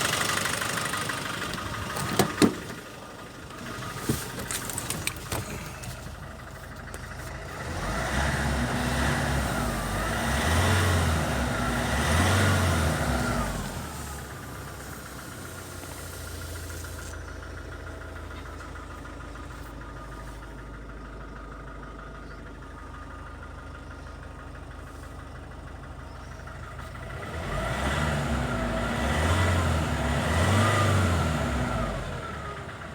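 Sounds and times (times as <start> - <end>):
diesel engine idling: 0.0 - 32.9
engine revving: 6.6 - 17.4, 26.4 - 32.9.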